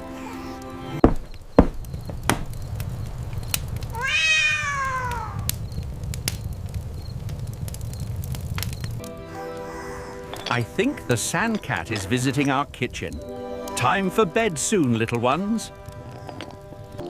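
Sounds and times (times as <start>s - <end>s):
sharp knocks: 1.0s - 2.5s
cat meowing: 3.9s - 5.5s, 9.3s - 11.7s.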